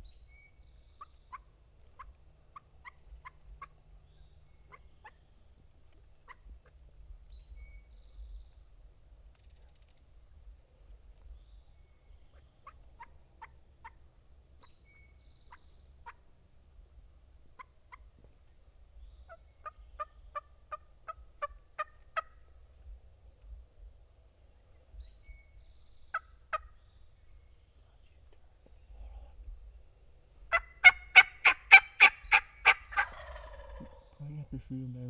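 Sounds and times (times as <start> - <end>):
faint songbird chirps: 0.0 - 16.3, 17.6 - 30.9, 32.2 - 35.0
turkey yelping: 19.3 - 22.4, 30.5 - 34.1.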